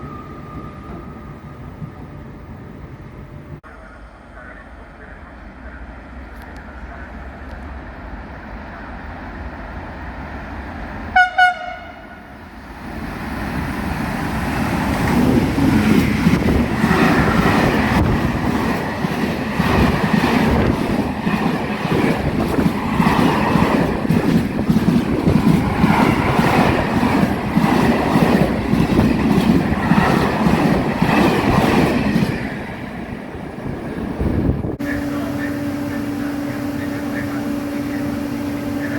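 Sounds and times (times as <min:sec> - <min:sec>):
passing train rumble: 0:00.0 - 0:38.9
train horn toots: 0:11.1 - 0:12.3.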